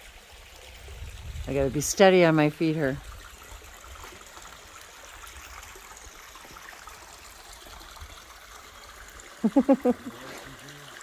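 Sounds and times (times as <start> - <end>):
creek running over rocks: 0.0 - 11.0.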